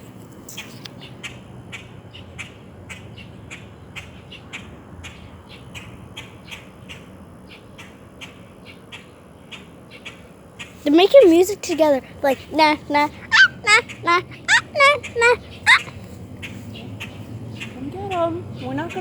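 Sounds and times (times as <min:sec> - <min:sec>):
birds chirping: 0:09.9 - 0:19.0.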